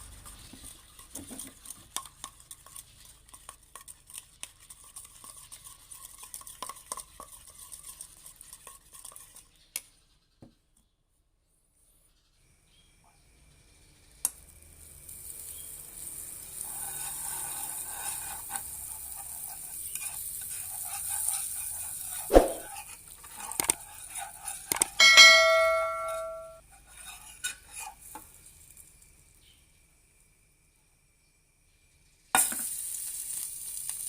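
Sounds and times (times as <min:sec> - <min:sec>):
food sizzling in a pan: 0:14.5 - 0:30.3, 0:32.0 - 0:34.0
metal cookware ringing: 0:25.0 - 0:26.6
metal utensils scraping cookware: 0:25.0 - 0:27.6.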